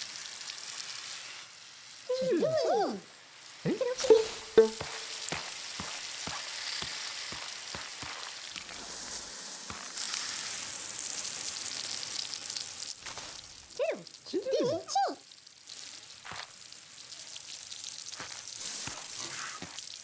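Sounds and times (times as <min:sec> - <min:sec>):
water spraying: 0:03.7 - 0:14.8, 0:18.1 - 0:20.0.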